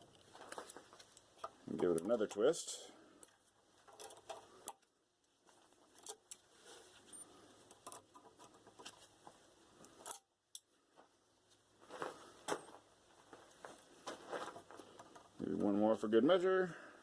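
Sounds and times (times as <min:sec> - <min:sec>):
metallic clicking and scraping: 0:00.0 - 0:04.9, 0:05.5 - 0:10.7.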